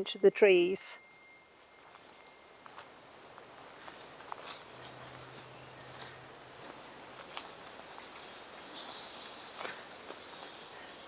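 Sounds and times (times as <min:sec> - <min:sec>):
faint footsteps on path: 0:01.1 - 0:11.0.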